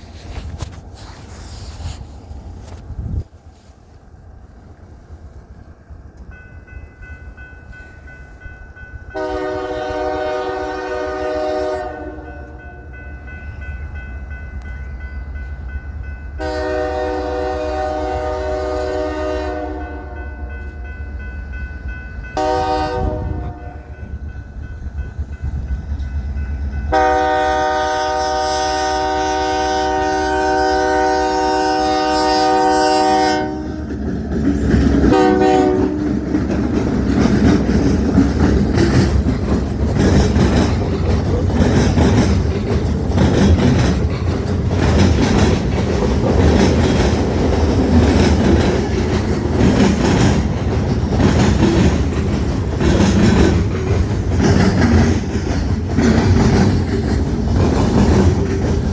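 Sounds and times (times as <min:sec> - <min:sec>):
train rumbling past: 0:00.0 - 0:58.9
locomotive air horn blasts: 0:09.2 - 0:12.9, 0:16.4 - 0:20.7, 0:22.4 - 0:24.0, 0:26.9 - 0:33.8, 0:35.1 - 0:36.1
wheels clicking over rail joints: 0:33.5 - 0:58.9.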